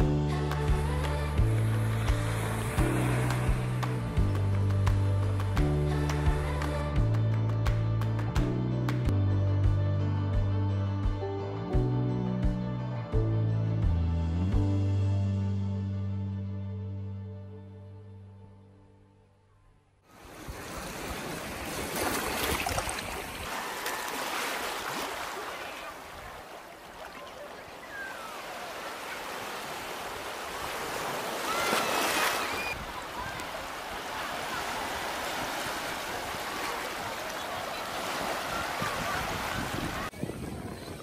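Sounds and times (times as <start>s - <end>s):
sea waves washing onto sand: 0.5s - 4.7s, 20.1s - 40.2s.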